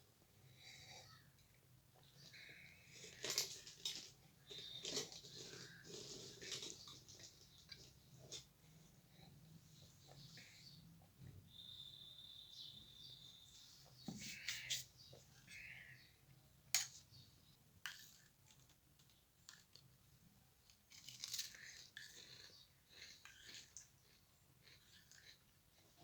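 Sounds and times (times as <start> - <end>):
soft tearing and crunching food: 2.0 - 10.6, 20.6 - 26.0.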